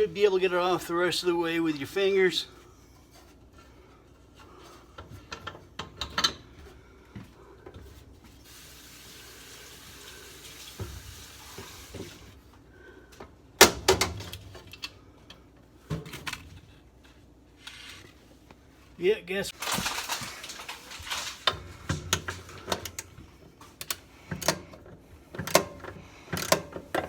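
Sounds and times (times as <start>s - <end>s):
metal wrench clicks and knocks: 25.3s - 27.0s.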